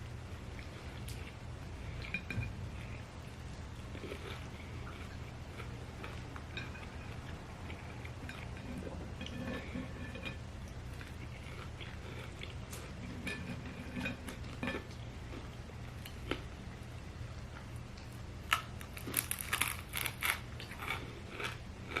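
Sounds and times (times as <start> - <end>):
steady low hum: 0.0 - 22.0
close chewing and mouth smacks: 0.4 - 13.0, 17.3 - 22.0.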